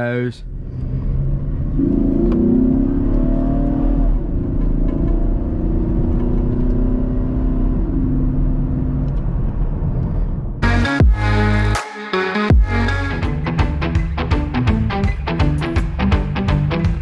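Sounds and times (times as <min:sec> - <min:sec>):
car engine running: 0:12.5 - 0:17.0.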